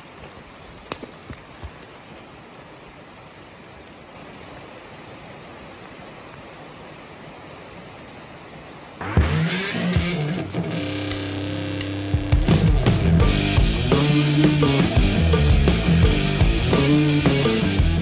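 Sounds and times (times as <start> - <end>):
rain falling on foliage: 0.0 - 13.6.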